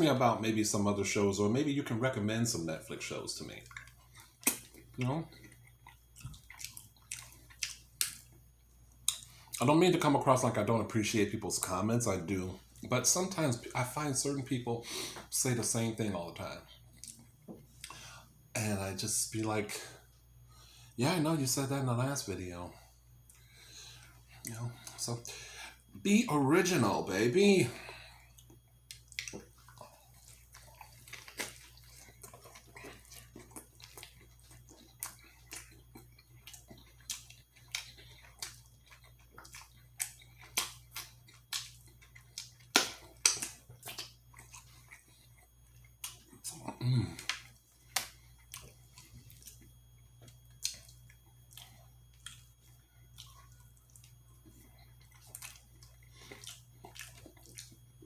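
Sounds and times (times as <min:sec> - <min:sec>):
low electrical hum: 0:00.0 - 0:58.0
person chewing: 0:03.5 - 0:09.6, 0:16.7 - 0:18.2, 0:27.8 - 0:58.0
wet mouth clicks and smacks: 0:03.6 - 0:05.0, 0:06.2 - 0:08.4, 0:36.4 - 0:44.7
person humming: 0:46.6 - 0:47.2.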